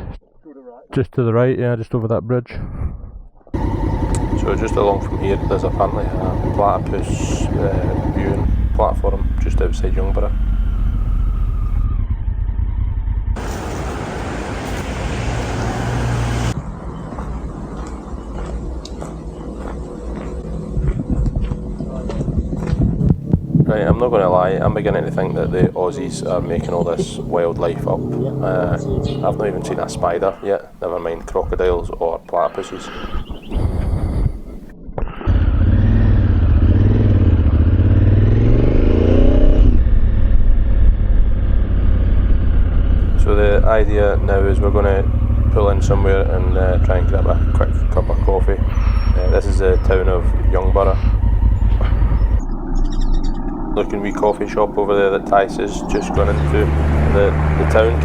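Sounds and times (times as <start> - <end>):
motorcycle engine humming: 3.6 - 32.3, 35.4 - 58.0
rushing noise: 13.4 - 18.3
wind rushing over microphone: 13.4 - 32.1, 32.7 - 35.3, 42.8 - 58.0.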